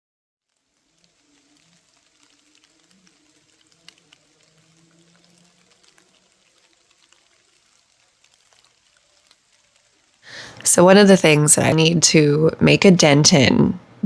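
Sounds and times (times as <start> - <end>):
small ticks: 0.4 - 10.7.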